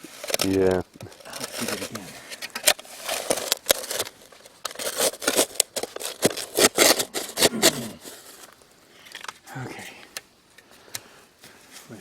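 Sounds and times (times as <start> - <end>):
shovel digging into gravel: 4.7 - 8.0.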